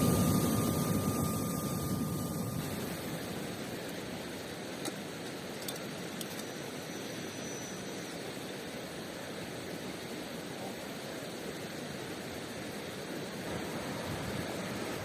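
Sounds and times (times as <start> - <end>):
faint high whistle: 7.2 - 8.1.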